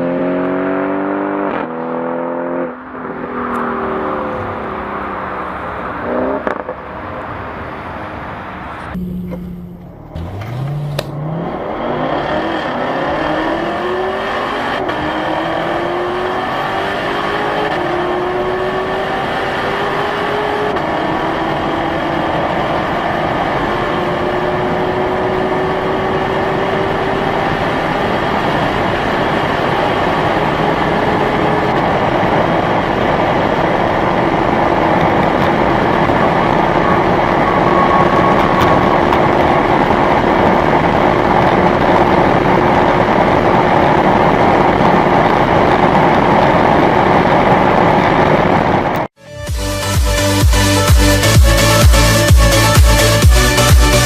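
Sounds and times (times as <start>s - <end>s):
wind and road noise: 0.0s - 49.6s
car engine accelerating: 0.0s - 54.0s.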